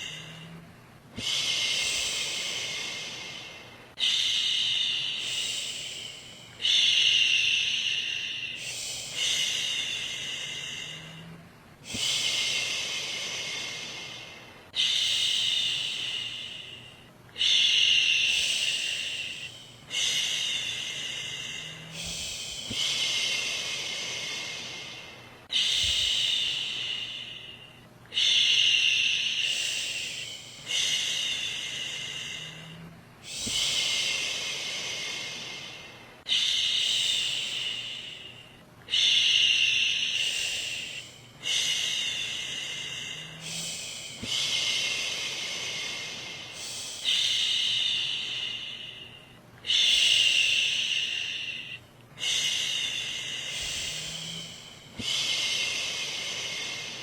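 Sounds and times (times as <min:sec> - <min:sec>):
woman shushing: 0:53.5 - 0:55.3.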